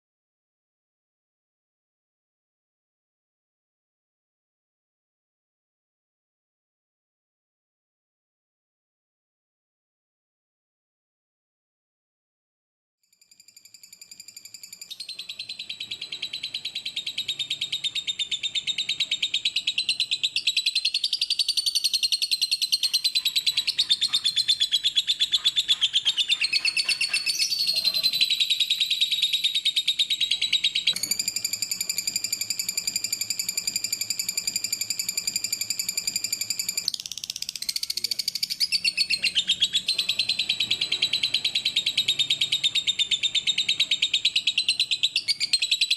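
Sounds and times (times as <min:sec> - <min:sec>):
lovebird chattering: 0:14.6 - 0:45.9.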